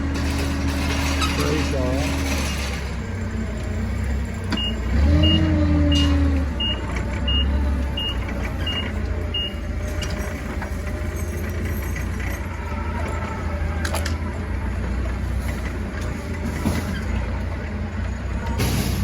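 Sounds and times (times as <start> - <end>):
forklift engine running: 0.0 - 19.0
reversing alarm beeps: 4.5 - 9.7.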